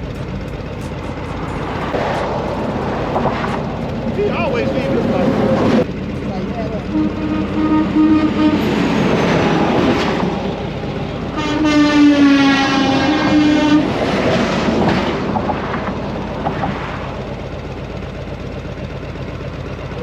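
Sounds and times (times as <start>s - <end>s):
wind and road noise: 0.0s - 19.2s
loud horn blast: 0.7s - 14.6s.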